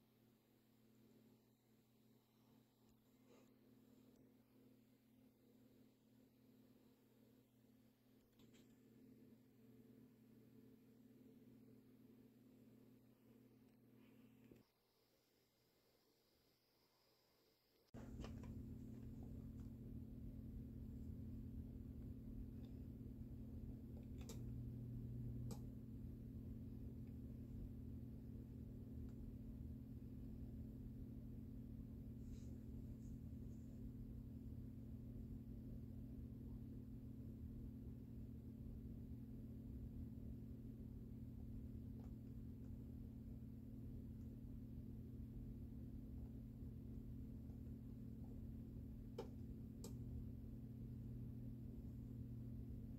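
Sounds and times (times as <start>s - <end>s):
ceiling fan motor hum: 18.0s - 52.9s
faint clicks: 23.9s - 24.6s.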